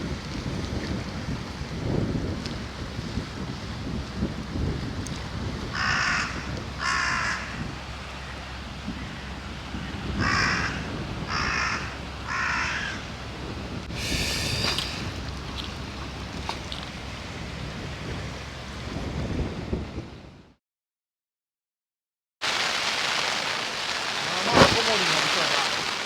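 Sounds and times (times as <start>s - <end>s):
steady wind: 0.0s - 20.6s
crow cawing: 5.8s - 7.6s, 10.2s - 13.1s
short noisy burst: 14.0s - 15.2s.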